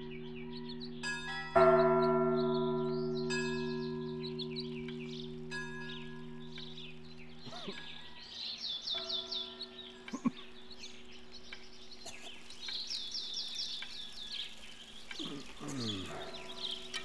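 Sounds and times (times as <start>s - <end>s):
soft low held tones: 0.0s - 8.2s
small birds chirping: 0.0s - 17.0s.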